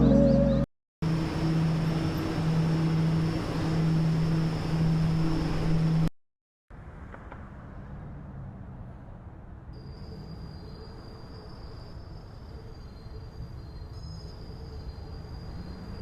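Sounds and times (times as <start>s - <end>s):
quieter steady rumble: 0.0s - 6.1s
subway train running: 0.1s - 6.1s, 9.8s - 16.0s.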